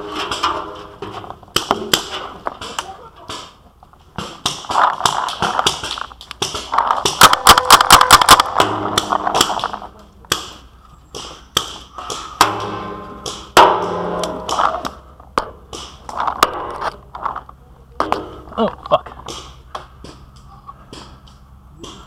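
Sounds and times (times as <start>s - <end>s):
paintball markers firing: 4.2s - 12.4s.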